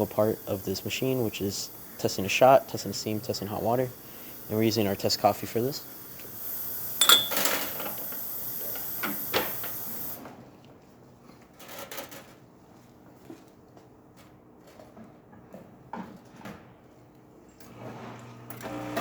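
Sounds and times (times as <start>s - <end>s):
machine hissing: 0.0s - 10.2s.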